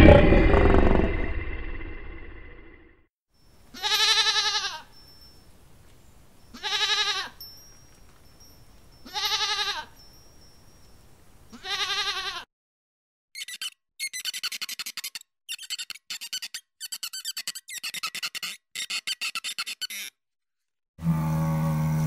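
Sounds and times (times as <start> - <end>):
goat bleating: 3.7 - 4.9, 6.5 - 7.4, 9.0 - 9.9, 11.5 - 12.5.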